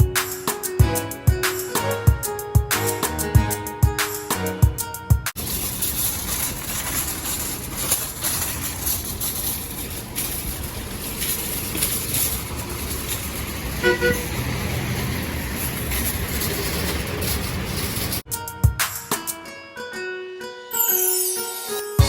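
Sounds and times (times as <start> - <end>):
outdoor street noise: 0.0 - 19.7
vehicle horn toot: 13.8 - 14.4.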